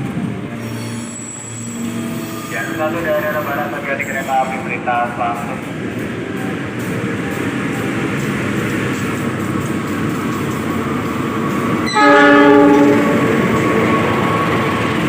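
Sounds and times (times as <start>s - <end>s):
train wheels rumbling: 0.0s - 15.0s
train horn blast: 11.8s - 13.8s.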